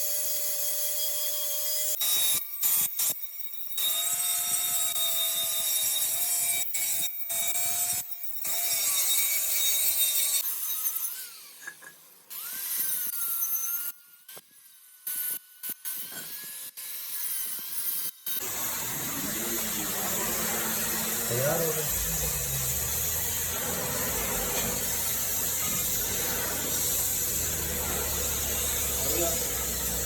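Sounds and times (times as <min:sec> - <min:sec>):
power tool whining: 0:18.4 - 0:30.0
rasping on metal wheel rim: 0:18.4 - 0:30.0.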